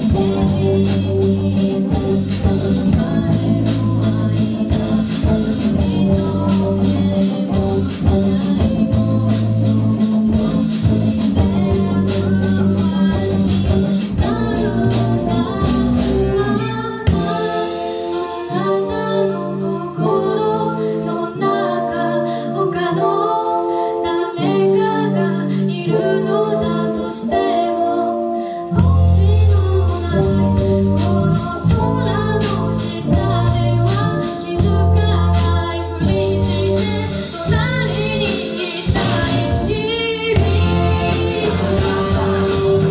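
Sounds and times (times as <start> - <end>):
live rock band playing: 0.0 - 42.9
person singing lead vocal: 0.0 - 42.9.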